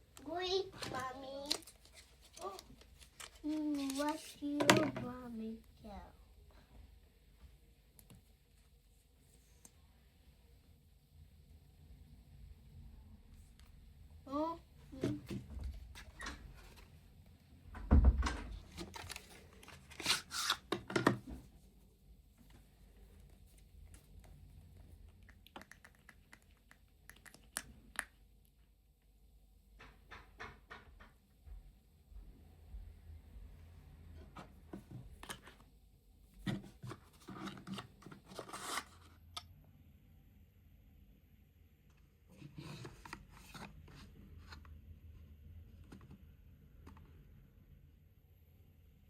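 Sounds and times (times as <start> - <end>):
scraping or rustling: 36.4 - 39.1.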